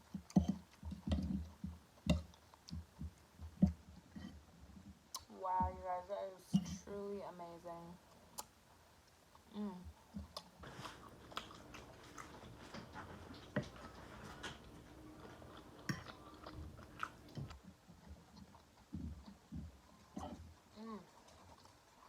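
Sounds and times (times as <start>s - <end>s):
person chewing and biting food: 10.2s - 17.6s
wet mouth clicks and crunches: 10.3s - 17.6s.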